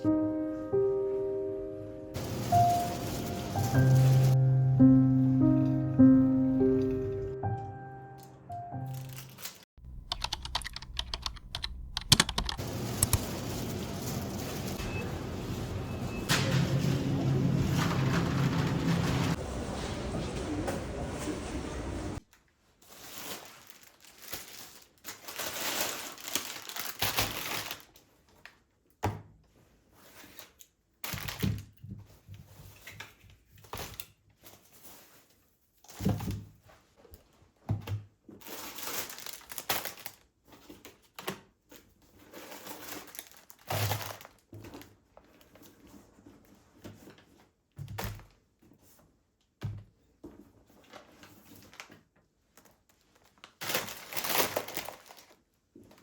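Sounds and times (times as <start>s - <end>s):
packaging crinkling: 2.2s - 4.4s, 8.9s - 15.6s, 22.9s - 28.0s, 38.4s - 40.2s, 42.4s - 44.4s, 53.2s - 55.4s.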